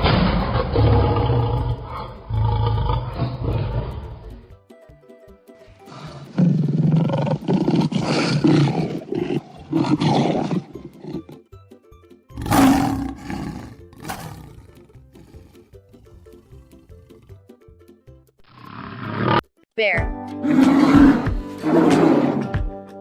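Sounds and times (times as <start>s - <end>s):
lion roaring: 0.0s - 4.4s, 5.9s - 11.4s, 12.4s - 17.4s, 20.4s - 22.6s
background music: 0.0s - 18.4s, 19.6s - 23.0s.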